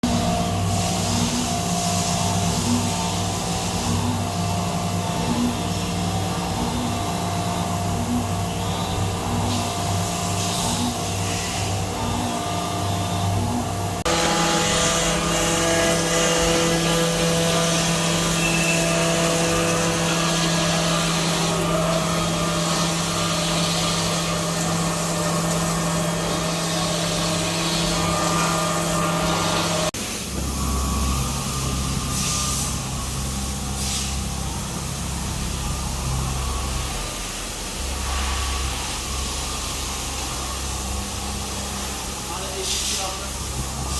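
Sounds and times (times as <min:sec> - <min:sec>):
low machine hum: 0:00.0 - 0:43.9
machine tool spindle whine: 0:00.0 - 0:43.9.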